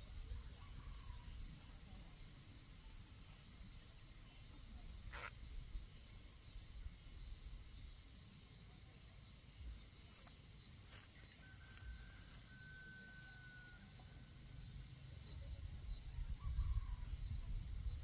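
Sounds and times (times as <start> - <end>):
steady high hiss: 0.0 - 11.2.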